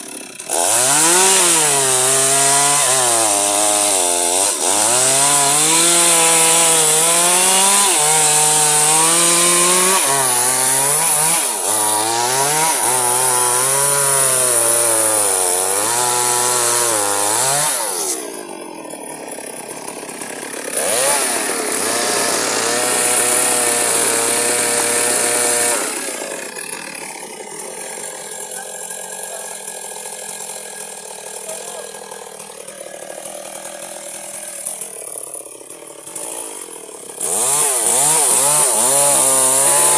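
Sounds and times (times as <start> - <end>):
electric chainsaw cutting wood: 0.0 - 39.9.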